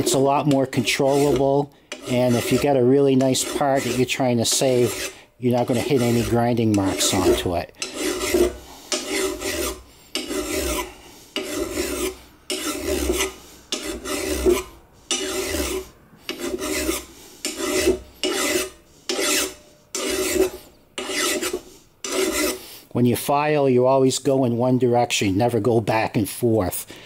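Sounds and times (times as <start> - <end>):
hand file rasping on metal: 0.0 - 22.7.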